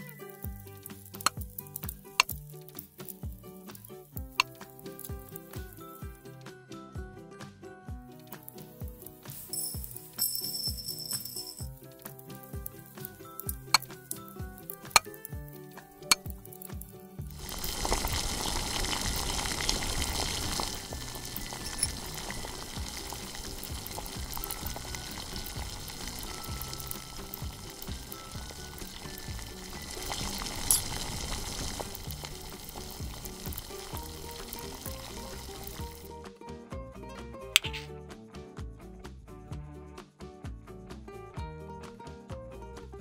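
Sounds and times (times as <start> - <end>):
strawberries sizzling in a pan: 0.0 - 6.1, 11.7 - 36.2
light background music: 0.0 - 43.0
sharp clink: 9.5 - 11.7
spoon stirring: 20.2 - 32.6.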